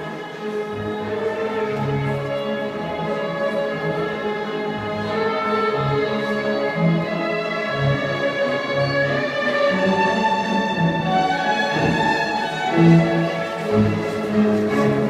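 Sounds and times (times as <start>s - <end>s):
orchestral strings melody: 0.0s - 15.0s.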